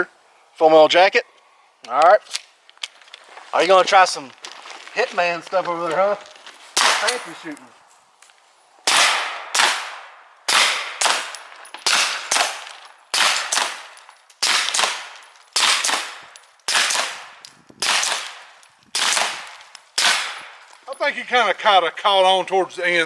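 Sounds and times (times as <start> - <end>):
pistol shots: 6.8 - 7.3, 8.9 - 20.6.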